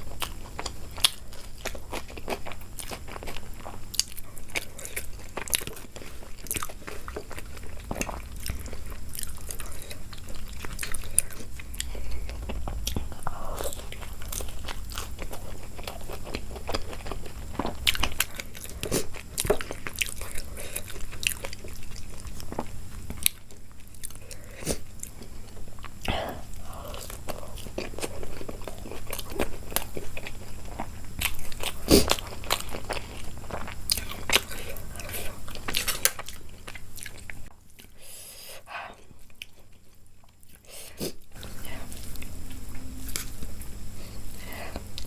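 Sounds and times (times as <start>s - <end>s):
person chewing crunchy food: 0.0s - 45.0s.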